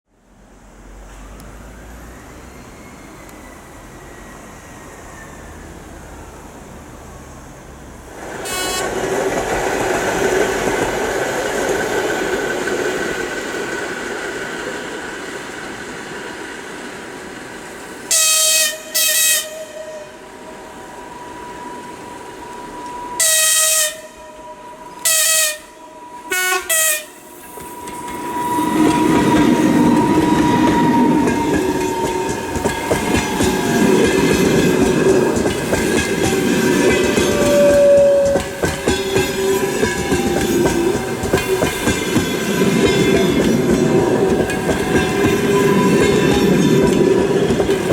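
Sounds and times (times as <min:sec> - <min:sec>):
train rumble passing: 0:00.2 - 0:47.9
train horn blasts: 0:08.4 - 0:09.0, 0:18.1 - 0:33.8, 0:36.1 - 0:42.1
wheel clatter over rail joints: 0:27.5 - 0:47.9.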